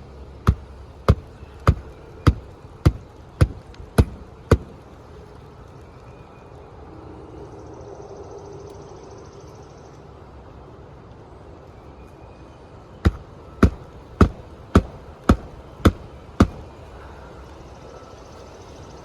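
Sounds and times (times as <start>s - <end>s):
hammer striking nail: 0.5s - 4.8s, 13.1s - 16.7s.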